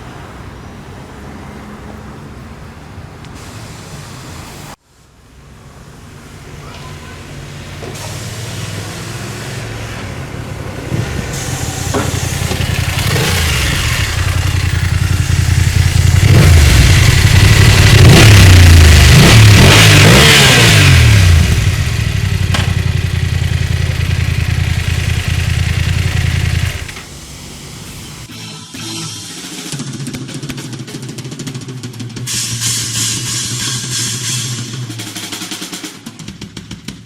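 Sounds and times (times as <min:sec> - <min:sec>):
motorcycle engine revving: 0:07.6 - 0:28.3.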